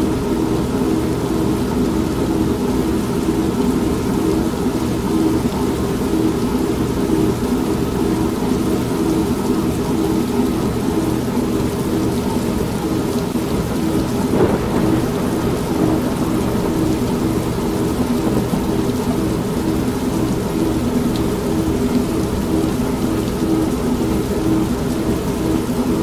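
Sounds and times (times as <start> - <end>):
rain: 0.0 - 26.0
washing machine churning: 12.6 - 21.5
low thunder rumble: 13.2 - 21.9.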